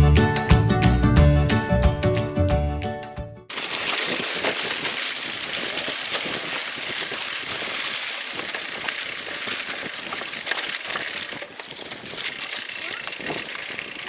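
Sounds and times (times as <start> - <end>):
mountain bike rattling: 3.5 - 14.0
wind on microphone: 4.1 - 14.0.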